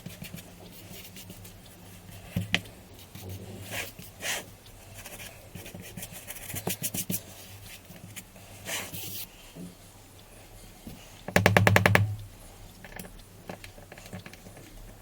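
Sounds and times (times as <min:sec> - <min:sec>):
sharp taps and clicks: 0:11.3 - 0:12.3.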